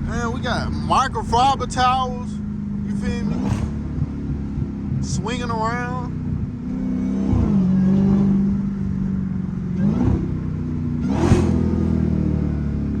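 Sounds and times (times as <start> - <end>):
car engine running and revving: 0.0 - 13.0.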